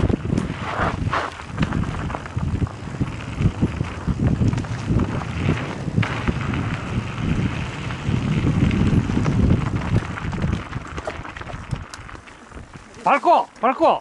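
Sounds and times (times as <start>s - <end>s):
wind buffeting microphone: 0.0s - 13.5s
tyre rumble on dirt: 0.0s - 13.8s.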